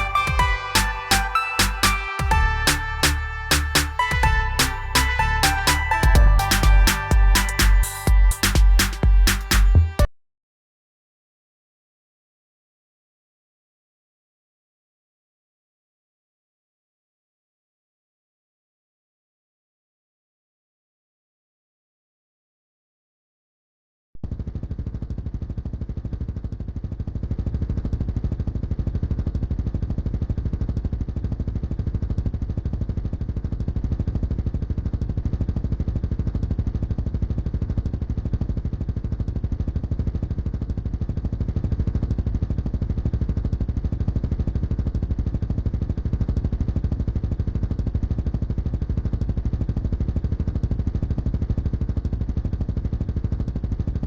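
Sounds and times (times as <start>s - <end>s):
motorcycle engine running: 2.2s - 10.1s, 24.2s - 54.0s.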